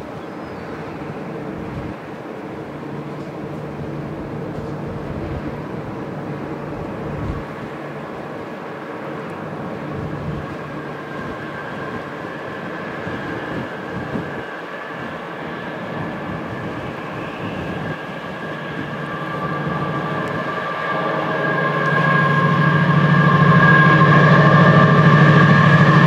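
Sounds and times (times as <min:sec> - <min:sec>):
train approaching: 0:00.0 - 0:26.0.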